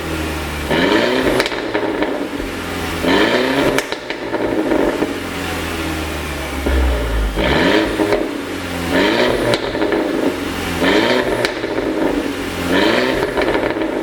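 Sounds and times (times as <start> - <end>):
car engine revving: 0.0 - 14.0
exhaust pops: 1.2 - 2.6, 3.6 - 5.2, 6.6 - 10.4, 11.2 - 14.0.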